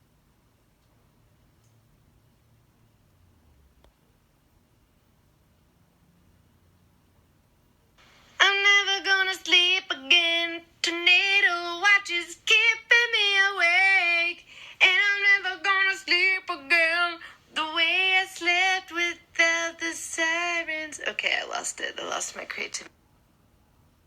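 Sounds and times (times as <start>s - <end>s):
woman singing unaccompanied: 8.4s - 22.9s.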